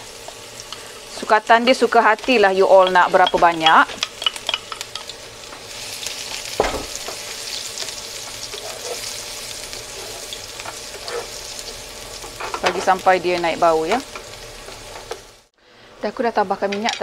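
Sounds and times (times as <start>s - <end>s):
shallots and garlic sizzling in oil: 0.0s - 15.5s
loud knock: 6.6s - 7.0s
wooden spatula scraping a pan: 7.8s - 9.2s, 9.8s - 11.5s.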